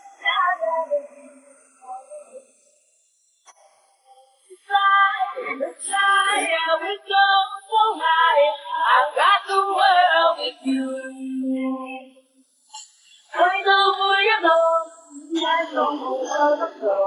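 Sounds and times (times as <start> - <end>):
woman singing: 0.0 - 2.3, 4.6 - 12.0, 13.3 - 17.0.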